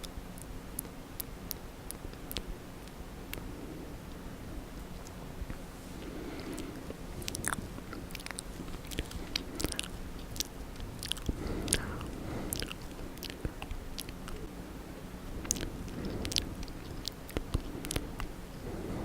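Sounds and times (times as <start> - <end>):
wet lip and tongue smacks: 6.5 - 14.5, 15.4 - 18.3.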